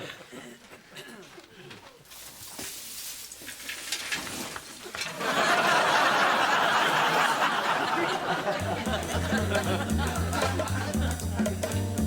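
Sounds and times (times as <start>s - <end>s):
audience laughter: 5.0s - 11.8s.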